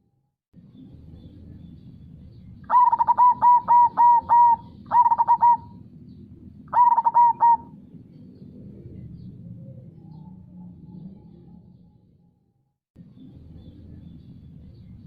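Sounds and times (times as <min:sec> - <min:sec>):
dove cooing: 0:02.7 - 0:05.9, 0:06.7 - 0:07.8.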